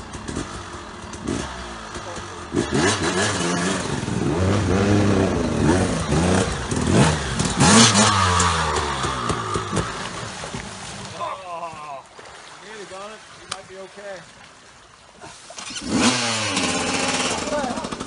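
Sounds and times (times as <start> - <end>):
motorcycle engine revving: 0.0 - 10.8, 15.6 - 18.0
water splashing: 5.1 - 18.0.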